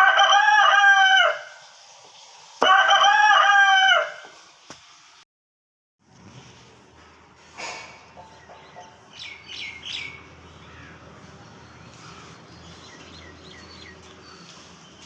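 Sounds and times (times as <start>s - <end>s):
small birds chirping: 8.1s - 15.0s.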